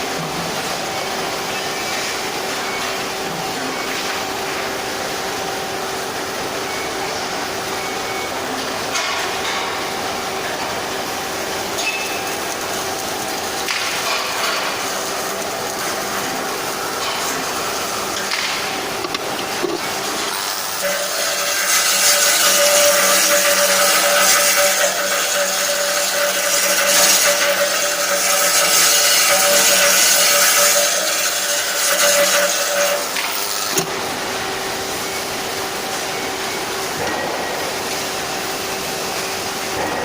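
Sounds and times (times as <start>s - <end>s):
machine hum: 0.0s - 40.0s
power tool hissing: 19.8s - 34.3s.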